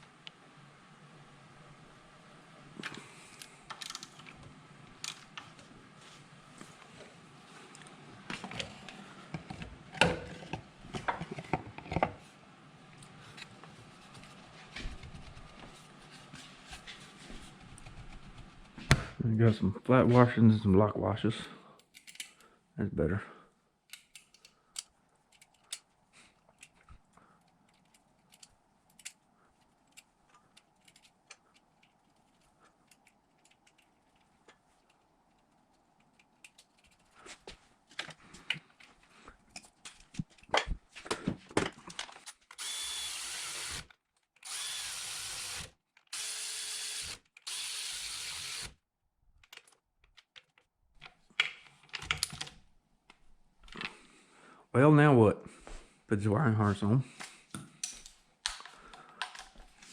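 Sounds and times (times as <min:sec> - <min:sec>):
power drill driving fasteners: 0:42.6 - 0:48.8.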